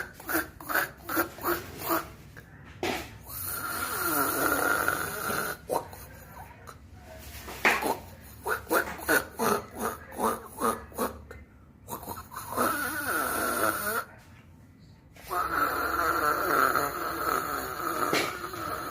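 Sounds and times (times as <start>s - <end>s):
person snoring: 0.0s - 2.1s, 3.2s - 6.0s, 11.9s - 14.1s, 15.2s - 18.9s.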